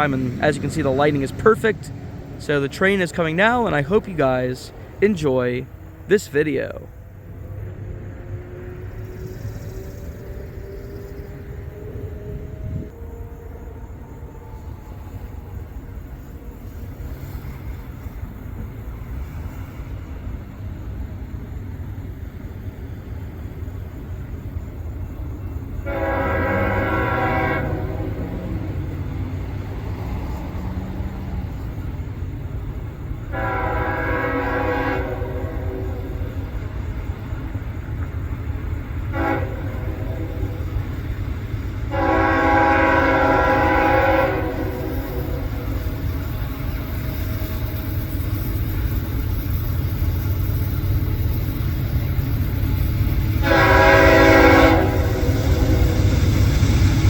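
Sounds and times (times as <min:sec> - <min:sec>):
locomotive rumble: 0:00.0 - 0:57.0
locomotive air horn blasts: 0:25.8 - 0:28.6, 0:33.3 - 0:36.3, 0:39.1 - 0:40.8, 0:41.9 - 0:45.5, 0:53.4 - 0:56.1.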